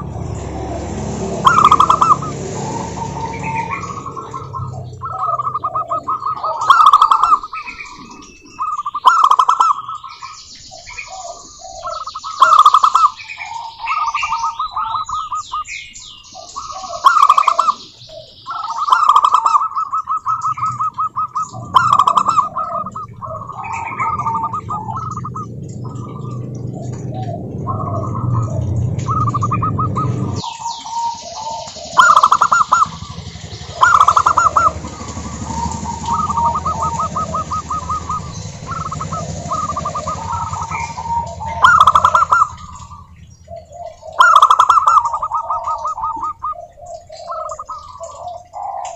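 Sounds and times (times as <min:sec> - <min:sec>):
low background rumble: 0:00.0 - 0:09.0, 0:19.9 - 0:48.5
doves cooing: 0:00.0 - 0:48.9
small birds chirping: 0:00.0 - 0:48.9.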